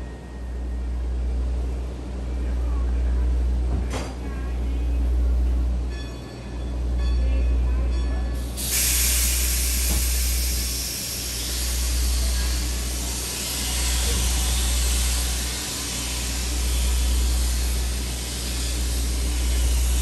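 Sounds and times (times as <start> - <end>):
train car rushing noise: 3.5 - 20.0.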